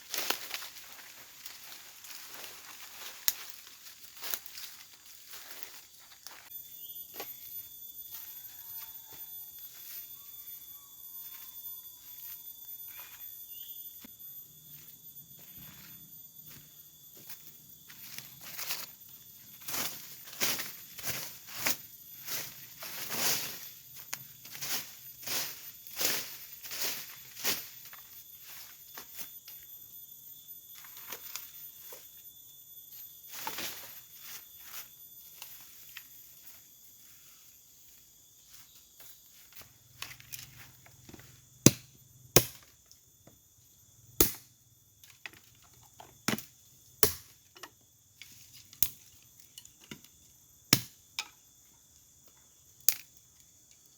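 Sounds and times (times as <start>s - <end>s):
high insect drone: 0.0s - 53.9s
chopping wood: 41.7s - 42.7s, 44.2s - 44.5s, 46.2s - 47.4s, 50.8s - 51.0s.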